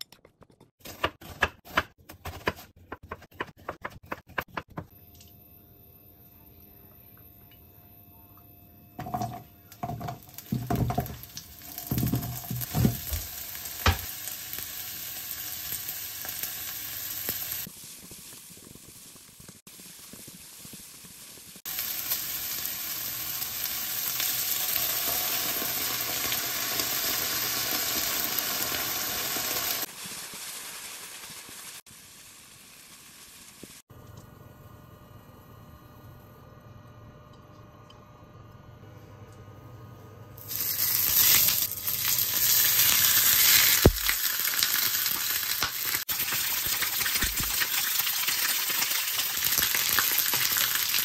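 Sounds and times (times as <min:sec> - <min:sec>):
food sizzling in a wok: 0:09.0 - 0:33.9, 0:40.4 - 0:51.0.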